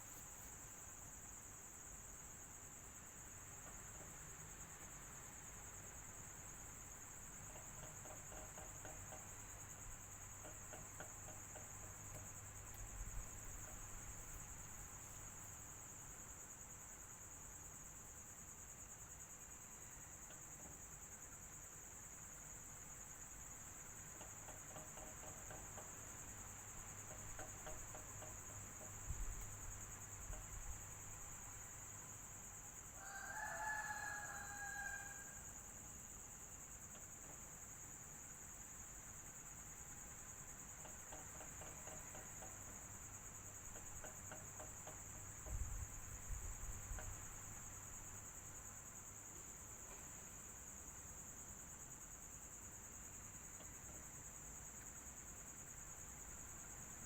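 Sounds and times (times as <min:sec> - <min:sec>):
rooster crowing: 0:33.0 - 0:35.6.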